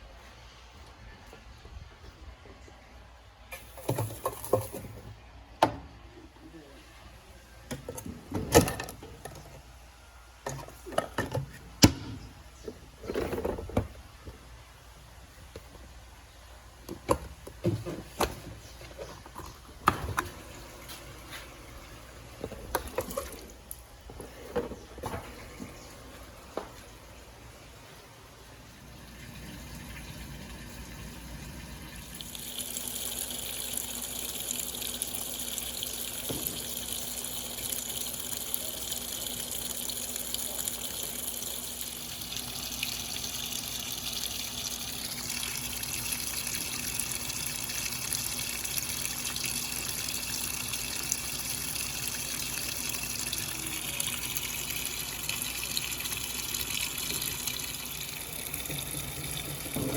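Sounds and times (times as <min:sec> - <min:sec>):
washing machine filling with water: 0:03.5 - 0:05.2, 0:16.8 - 0:59.9.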